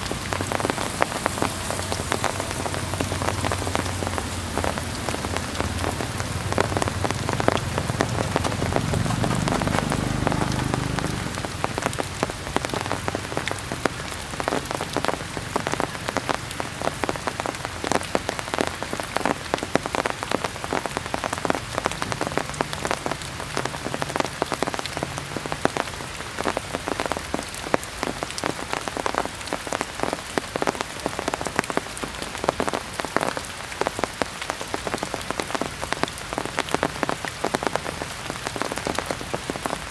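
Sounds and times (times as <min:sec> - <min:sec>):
low rumble: 0:00.0 - 0:12.0
heavy rain pattering: 0:00.0 - 0:39.9.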